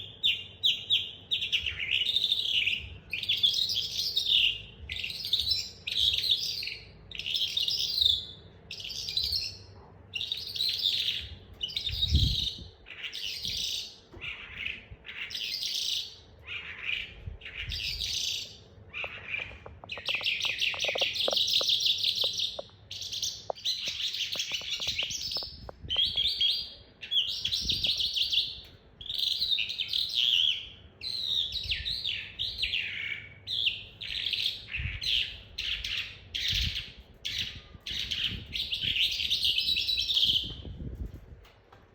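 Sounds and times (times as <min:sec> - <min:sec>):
lark singing scratchy chirps: 0:00.0 - 0:40.7
lark rolling trills: 0:18.9 - 0:26.7.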